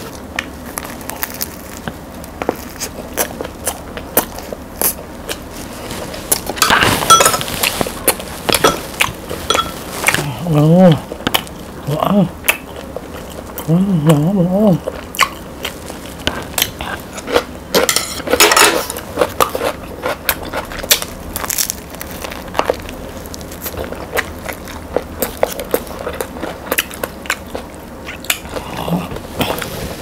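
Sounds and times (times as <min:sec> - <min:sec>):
crunching bread crust: 0:00.0 - 0:30.0
person humming mmm: 0:10.0 - 0:11.2, 0:11.8 - 0:12.6, 0:13.5 - 0:15.0, 0:28.3 - 0:30.0.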